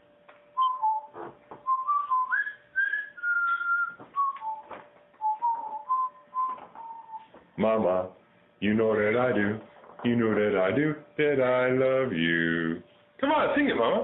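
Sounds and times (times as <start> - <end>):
person whistling a tune: 0.6 - 7.4.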